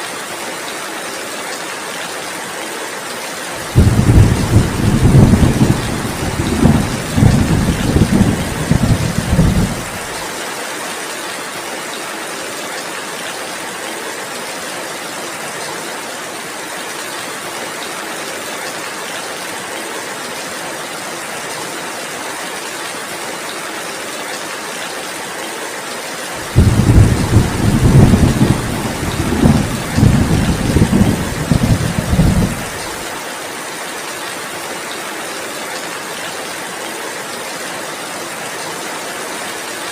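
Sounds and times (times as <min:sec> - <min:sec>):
heavy rain falling: 0:00.1 - 0:39.9
low rolling thunder: 0:03.6 - 0:10.2, 0:26.4 - 0:33.0.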